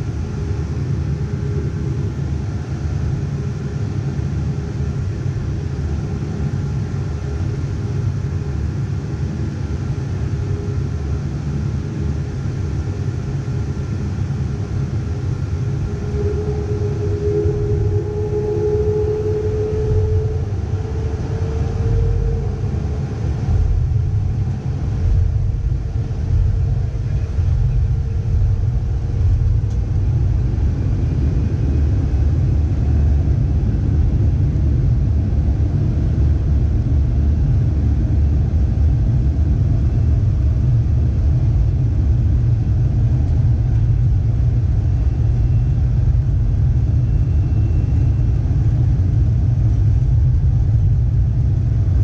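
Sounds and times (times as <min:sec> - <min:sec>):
faint steady tone: 0:00.0 - 0:34.9, 0:43.7 - 0:50.2
aircraft cabin engine rumble: 0:00.0 - 0:52.0.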